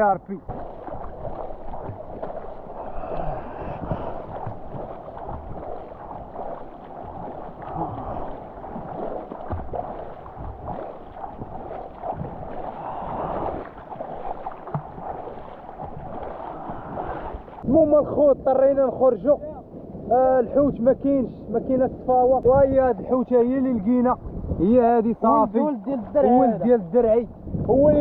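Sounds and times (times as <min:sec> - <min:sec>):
seawater sloshing and splashing: 0:00.0 - 0:17.8.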